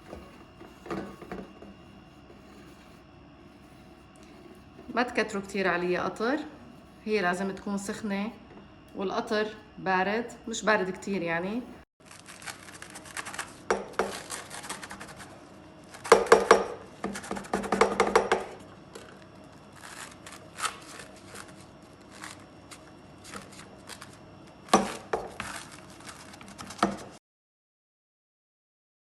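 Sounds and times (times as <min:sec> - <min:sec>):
pastry crust crackling as cut: 0:12.0 - 0:17.6, 0:18.9 - 0:27.2.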